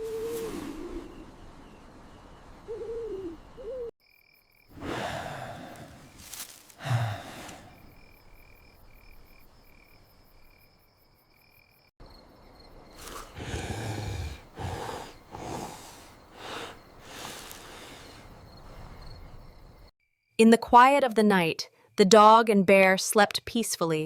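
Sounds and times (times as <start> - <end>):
cricket trill: 4.0 - 20.2
sleeping animals sighing and snorting: 4.7 - 8.5, 13.0 - 19.8.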